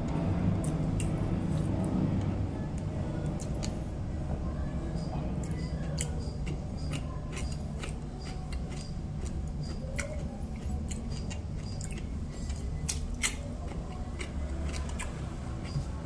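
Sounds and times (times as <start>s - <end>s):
low steady hum: 0.0s - 16.0s
chewing: 5.4s - 16.0s.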